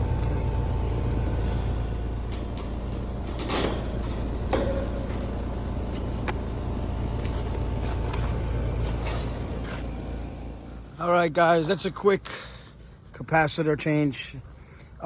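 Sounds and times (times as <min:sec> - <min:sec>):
air conditioner condenser humming: 0:00.0 - 0:15.0
handling knocks and clatters: 0:02.2 - 0:06.4.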